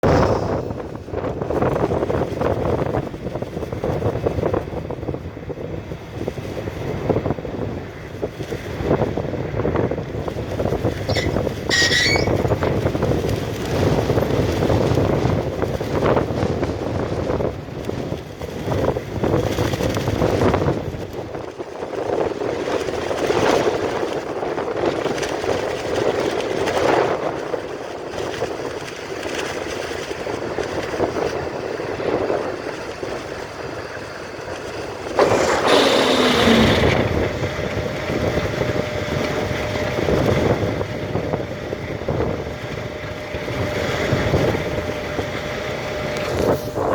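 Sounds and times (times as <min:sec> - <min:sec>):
high squeal: 0:11.1 - 0:12.7, 0:35.2 - 0:37.2
diesel truck engine running: 0:34.9 - 0:46.9.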